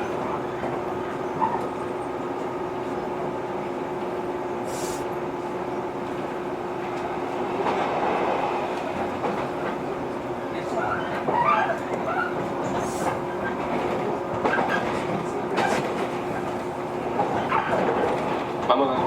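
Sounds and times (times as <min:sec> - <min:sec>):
train wheels on rails: 0:00.0 - 0:19.0
short hiss: 0:04.6 - 0:05.1.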